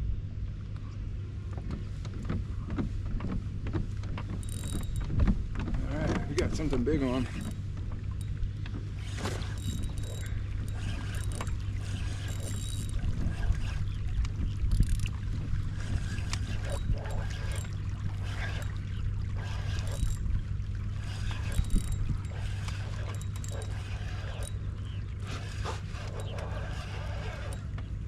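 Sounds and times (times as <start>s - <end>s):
small clicks and knocks: 0.8s - 13.0s
water sloshing against kayak hull: 1.2s - 28.0s
wind on microphone: 8.4s - 28.0s.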